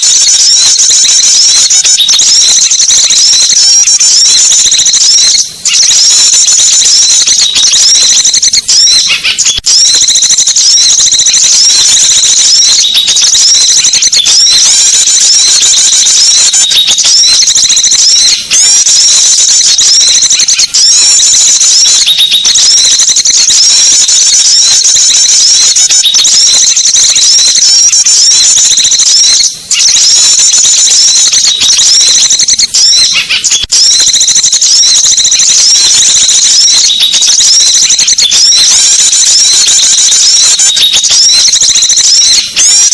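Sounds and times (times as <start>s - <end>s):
small birds chirping and twittering: 4.2s - 9.7s, 10.5s - 22.6s, 32.9s - 33.7s.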